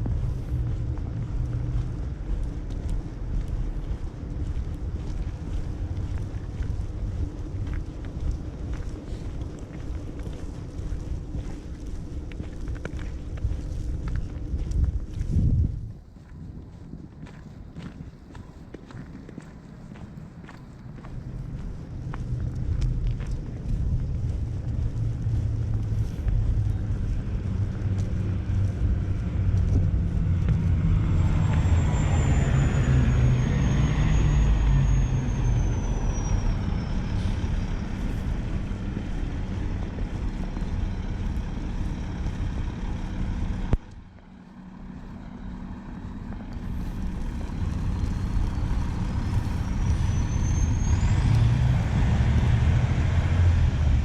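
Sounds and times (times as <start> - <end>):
heavy vehicles rumbling past: 0.0 - 54.0
high-pitched gliding whine: 26.0 - 43.5.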